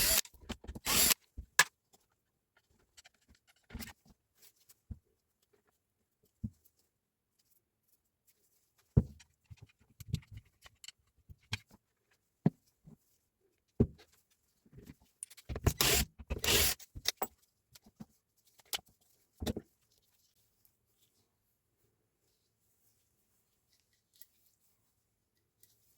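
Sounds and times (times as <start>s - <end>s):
tools clicking and knocking: 15.2s - 17.3s
rustling and scraping: 17.1s - 25.9s.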